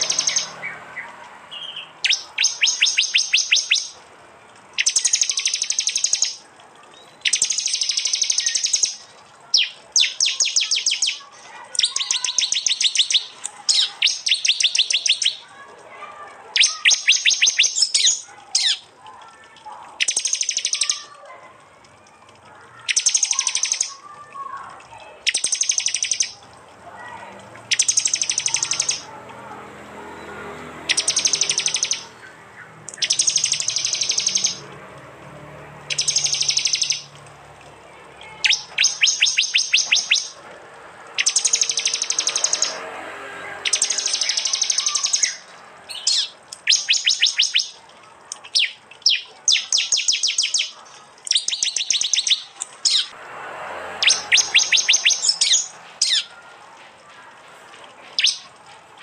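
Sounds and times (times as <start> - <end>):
bird call bursts: 0.0 - 4.0, 4.8 - 6.4, 7.2 - 15.6, 16.6 - 18.8, 20.0 - 21.1, 25.2 - 26.4, 27.7 - 29.1, 30.9 - 34.6, 35.9 - 37.1, 38.4 - 40.4, 41.2 - 42.8, 43.6 - 47.8, 48.5 - 53.1, 54.0 - 56.5, 58.2 - 58.6.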